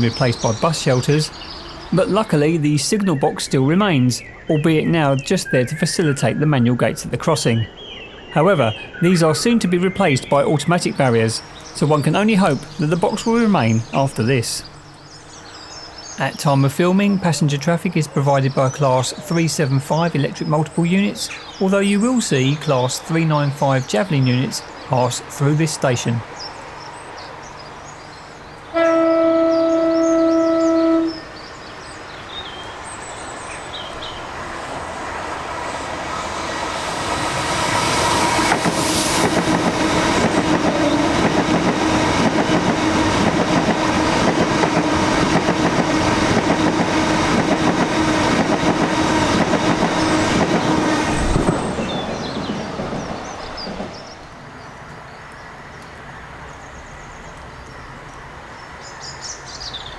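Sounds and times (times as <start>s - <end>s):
train horn: 28.7s - 31.4s
train wheels on rails: 32.7s - 54.6s.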